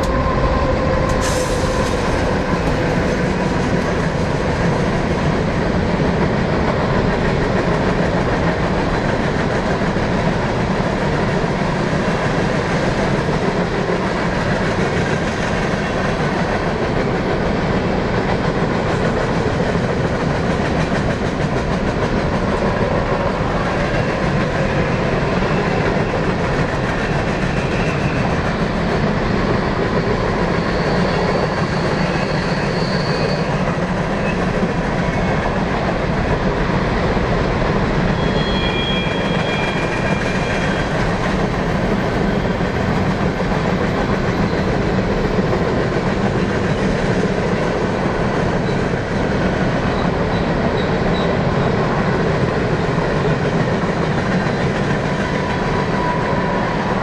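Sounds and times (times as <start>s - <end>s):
freight train wheels clacking: 0.0s - 57.0s
faint high-pitched squeal: 30.4s - 33.6s, 38.1s - 40.9s.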